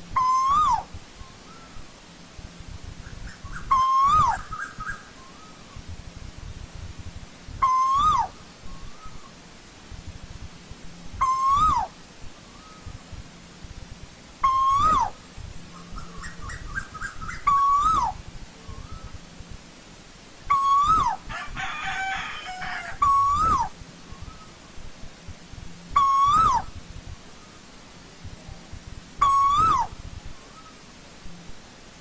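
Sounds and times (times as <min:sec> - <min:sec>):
bird whistled calls: 0:00.2 - 0:01.9, 0:03.0 - 0:05.9, 0:07.6 - 0:09.4, 0:11.2 - 0:13.0, 0:14.4 - 0:19.2, 0:20.5 - 0:21.2, 0:21.8 - 0:24.6, 0:26.0 - 0:26.8, 0:29.2 - 0:30.8
birds chattering: 0:03.0 - 0:05.9, 0:14.4 - 0:19.2.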